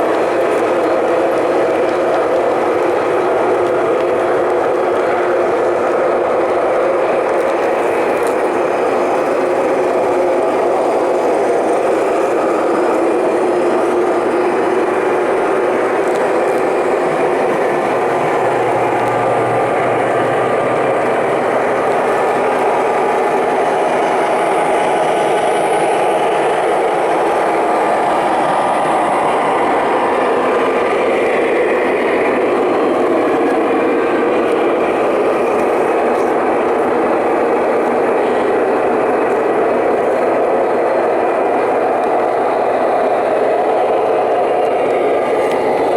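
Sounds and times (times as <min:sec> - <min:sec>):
model train wheels rattling on rails: 0:00.0 - 0:45.9.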